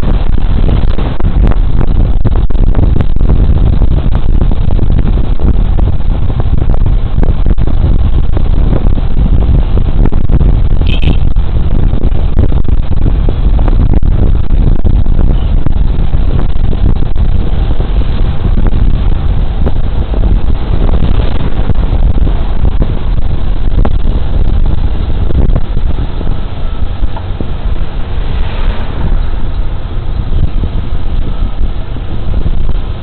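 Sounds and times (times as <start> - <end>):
road noise: 0.0 - 33.0
wind rush: 0.0 - 33.0
short high beep: 10.8 - 11.2.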